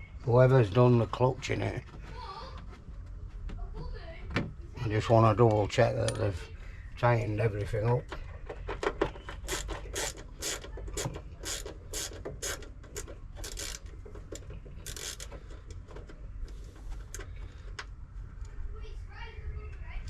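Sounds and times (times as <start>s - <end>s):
ratchet wrench clicking: 9.4s - 13.9s, 14.8s - 15.4s.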